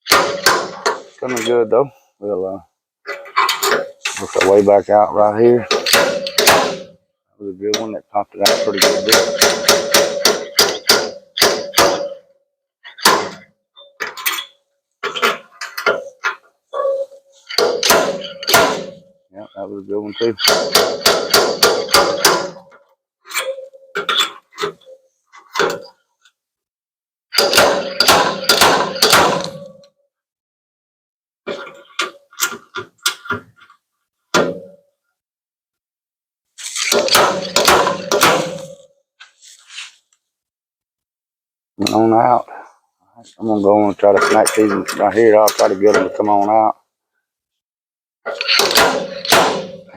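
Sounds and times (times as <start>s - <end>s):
slide hammer metallic knocks: 0.0s - 1.6s, 5.7s - 7.0s, 7.7s - 12.3s, 12.9s - 19.1s, 20.4s - 25.9s, 27.4s - 29.9s, 34.4s - 34.8s, 36.9s - 38.9s, 48.3s - 49.9s.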